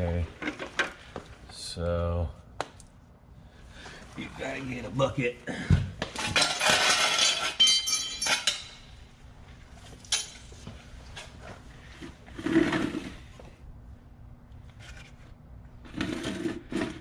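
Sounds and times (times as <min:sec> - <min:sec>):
metal objects clinking: 0:06.2 - 0:09.0.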